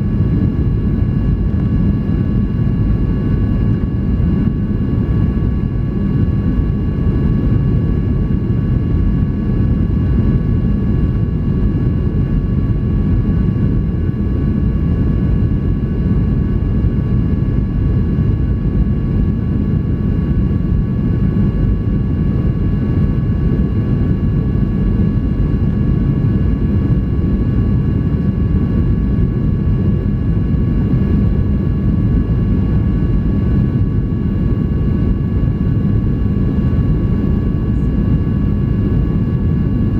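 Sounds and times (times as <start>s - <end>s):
airliner cabin engine rumble: 0.0s - 39.9s
faint steady whining tones: 0.0s - 39.9s.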